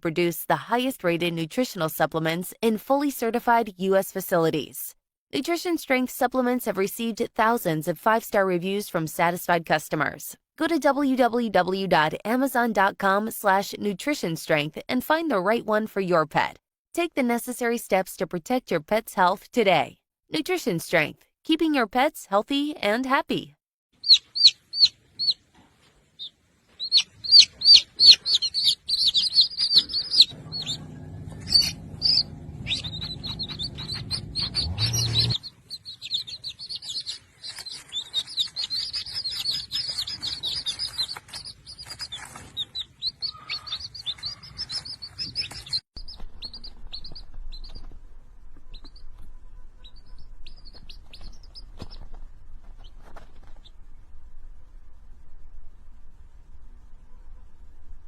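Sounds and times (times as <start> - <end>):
small birds chirping: 24.0 - 48.0, 48.6 - 52.2.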